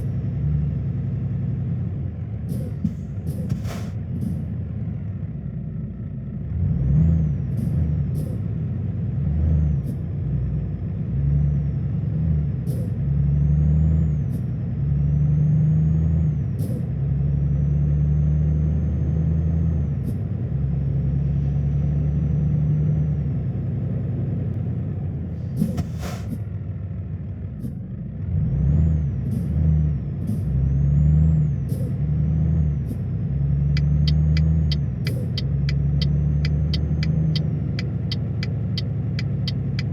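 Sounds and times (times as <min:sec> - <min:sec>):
truck engine running: 0:00.0 - 0:06.5, 0:18.6 - 0:28.0, 0:32.8 - 0:39.9
air hiss burst: 0:25.6 - 0:26.4
quick even ticks: 0:33.8 - 0:39.9.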